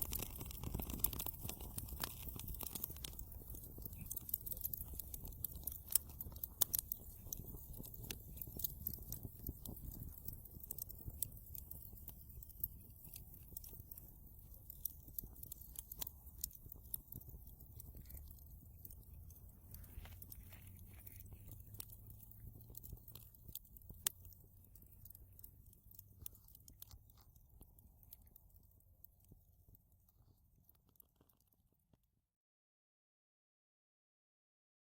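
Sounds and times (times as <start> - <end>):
fireplace fire crackling: 0.0 - 31.6
low rumble of flames: 0.0 - 31.6.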